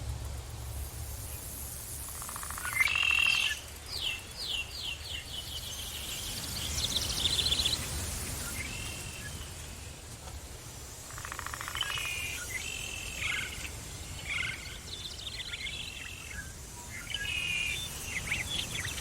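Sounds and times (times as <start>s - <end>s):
steady low rumble: 0.0s - 1.9s
songbirds calling: 1.1s - 10.0s, 11.0s - 19.0s.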